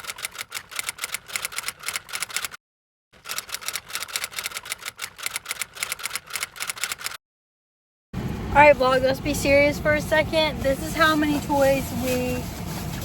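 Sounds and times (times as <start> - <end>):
rapid clicking: 0.0 - 2.6, 3.2 - 7.2.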